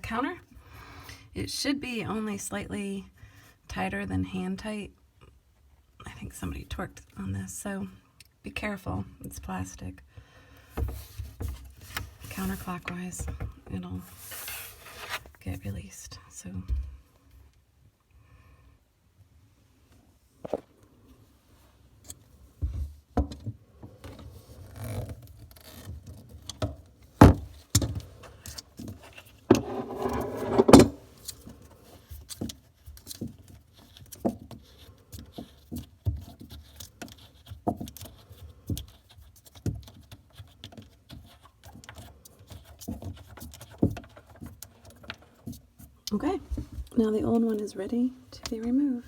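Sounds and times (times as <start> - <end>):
rattling scrape: 29.5 - 31.1.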